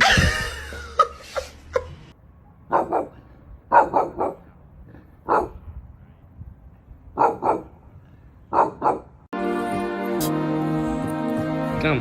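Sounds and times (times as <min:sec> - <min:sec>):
dog barking: 0:02.7 - 0:04.5, 0:05.2 - 0:05.7, 0:07.2 - 0:07.8, 0:08.5 - 0:09.2.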